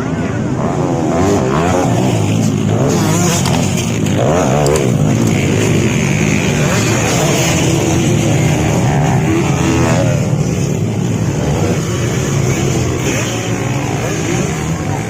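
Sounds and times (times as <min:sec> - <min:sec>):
motocross engines revving: 0:00.0 - 0:15.0.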